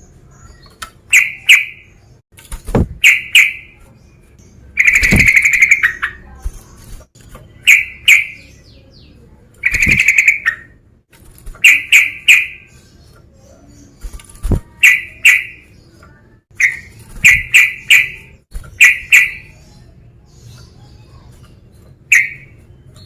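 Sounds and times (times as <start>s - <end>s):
bird rapid chattering: 0.4s - 2.0s, 2.6s - 10.8s, 11.4s - 23.0s
bird calling sharp notes: 1.1s - 2.0s, 3.0s - 3.8s, 4.8s - 6.3s, 7.5s - 8.6s, 9.6s - 10.8s, 11.6s - 12.8s, 14.5s - 15.7s, 16.5s - 19.5s, 22.1s - 22.6s.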